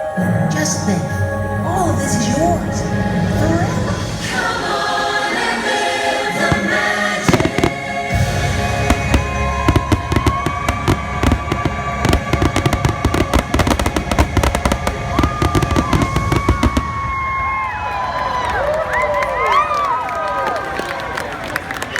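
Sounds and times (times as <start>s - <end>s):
orchestral and choir music: 0.0s - 17.6s
low rumble: 1.4s - 5.0s, 8.1s - 18.2s
fireworks bangs and crackles: 6.4s - 18.0s.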